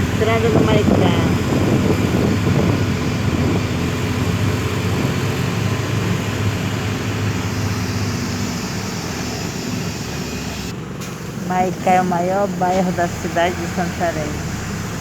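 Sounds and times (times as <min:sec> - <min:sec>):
bus engine drone: 0:00.0 - 0:15.0
road noise: 0:00.0 - 0:15.0.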